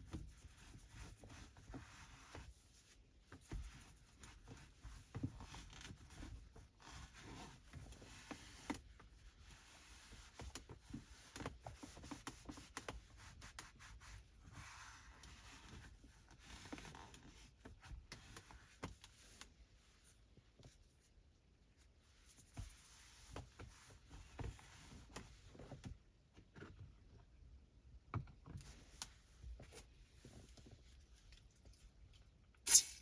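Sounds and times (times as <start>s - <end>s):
cloth wiping car interior: 0.2s - 21.1s, 21.8s - 25.6s.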